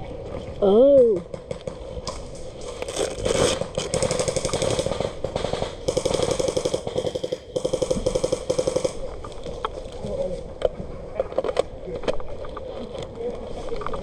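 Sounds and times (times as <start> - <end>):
airsoft gun firing full auto: 3.2 - 9.0.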